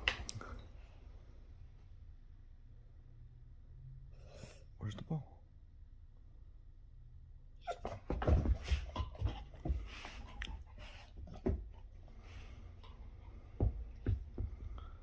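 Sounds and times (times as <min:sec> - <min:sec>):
knocks and thumps: 0:07.8 - 0:10.6, 0:11.2 - 0:11.8, 0:13.4 - 0:15.0.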